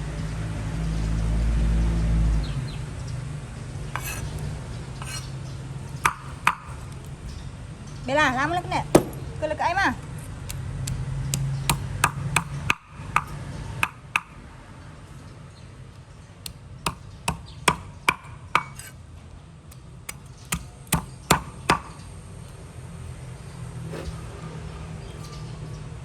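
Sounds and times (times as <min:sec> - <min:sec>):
sharp taps on hard surface: 0:09.0 - 0:09.3.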